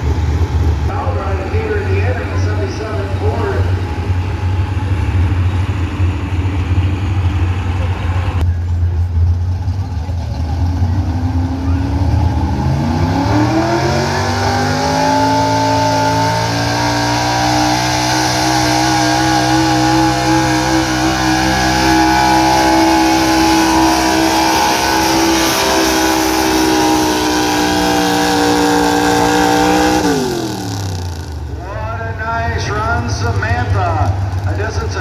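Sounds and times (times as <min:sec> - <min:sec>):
truck engine revving hard: 0:09.4 - 0:35.0.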